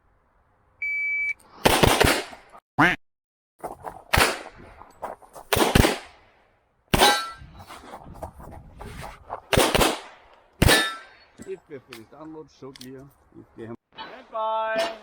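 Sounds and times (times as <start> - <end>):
pistol shots: 1.6 - 2.4, 4.1 - 4.5, 5.5 - 6.2, 9.5 - 11.1
steel targets ringing: 7.0 - 7.4, 10.7 - 11.3.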